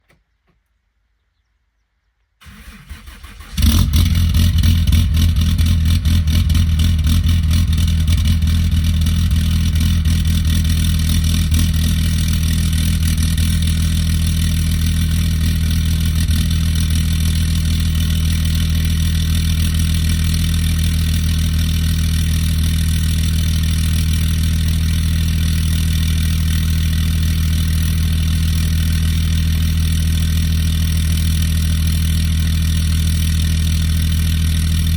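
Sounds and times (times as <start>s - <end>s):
starter motor cranking: 2.4s - 4.3s
diesel engine idling: 2.4s - 34.9s.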